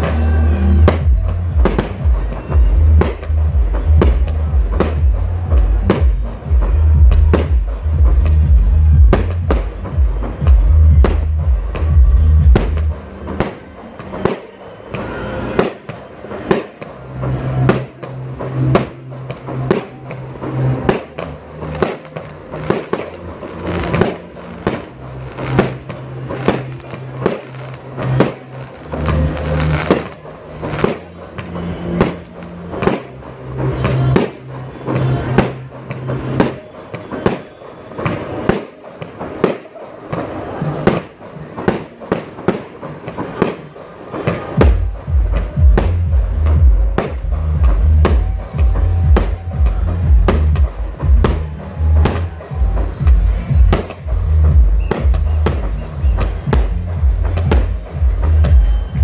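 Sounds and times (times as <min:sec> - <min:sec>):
music with deep bass: 0:00.0 - 0:37.4, 0:43.0 - 0:59.0
fireworks bursting: 0:00.0 - 0:59.0.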